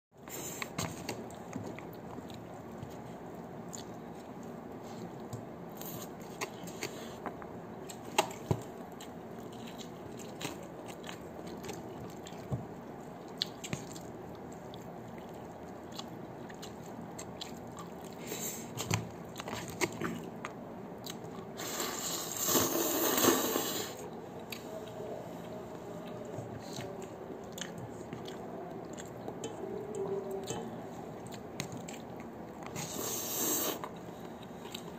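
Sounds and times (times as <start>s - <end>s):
room noise: 0.2s - 34.9s
man biting and chewing: 24.1s - 34.9s.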